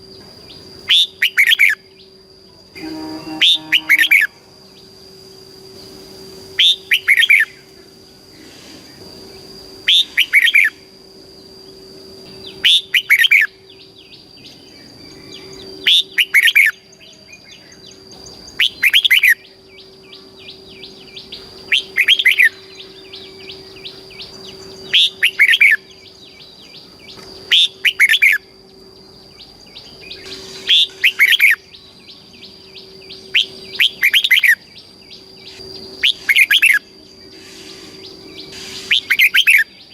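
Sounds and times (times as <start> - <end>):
bird singing: 0.0 - 39.9
faint high tone: 2.6 - 4.5.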